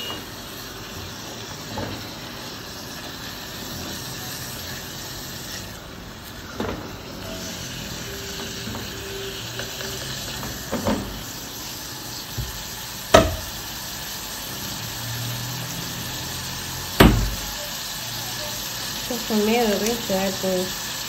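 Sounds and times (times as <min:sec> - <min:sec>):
meat and onions sizzling: 0:00.0 - 0:21.0
sharp knocks on pot: 0:13.1 - 0:13.5.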